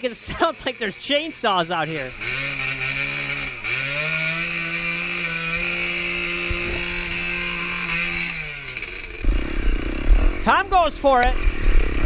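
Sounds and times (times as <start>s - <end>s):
dirt bike engine revving high: 0.3s - 12.0s.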